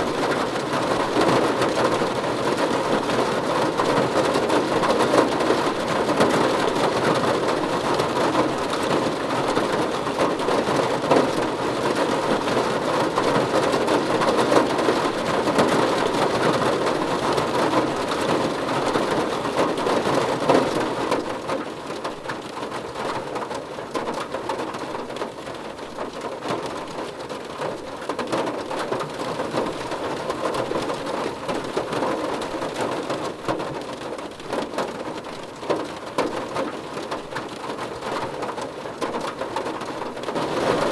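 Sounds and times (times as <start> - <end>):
raindrops ticking: 0.0 - 40.9
steady rain falling: 0.0 - 40.9.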